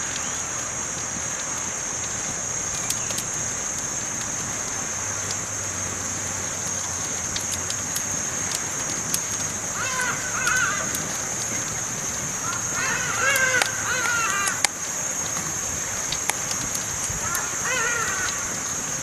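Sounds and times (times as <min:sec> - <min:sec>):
campfire crackling and popping: 0:00.0 - 0:19.0
crow cawing: 0:09.7 - 0:11.7, 0:12.3 - 0:14.8, 0:17.1 - 0:18.7.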